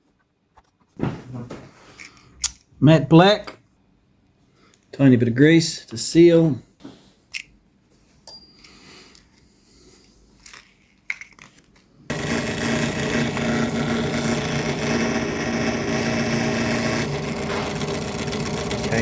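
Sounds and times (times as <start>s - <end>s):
small motor droning: 12.1s - 19.0s.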